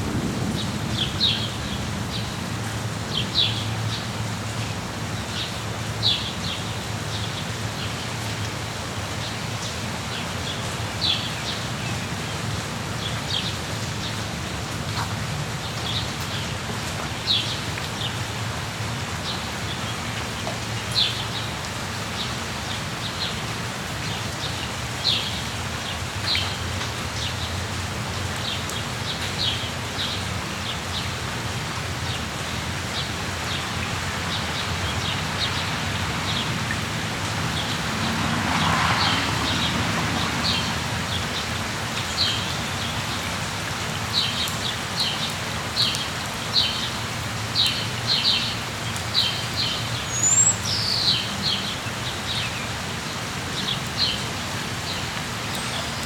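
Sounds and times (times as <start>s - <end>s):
rain falling: 0.0s - 56.0s
small birds chirping: 47.6s - 52.7s.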